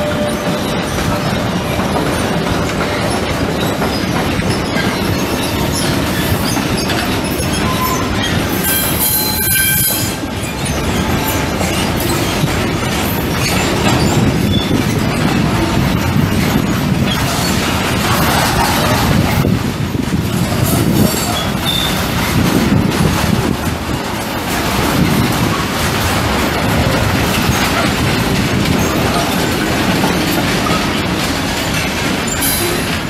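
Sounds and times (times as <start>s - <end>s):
train wagons rumbling on rails: 0.0s - 33.0s
high-pitched wheel squeal: 3.6s - 12.4s, 20.9s - 22.0s.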